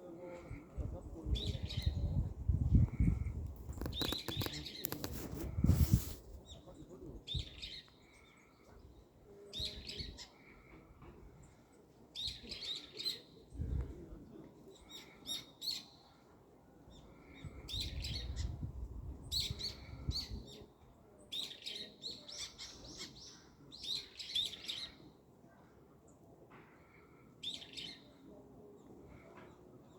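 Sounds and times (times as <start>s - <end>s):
small birds chirping: 0.4s - 10.8s, 19.3s - 25.2s.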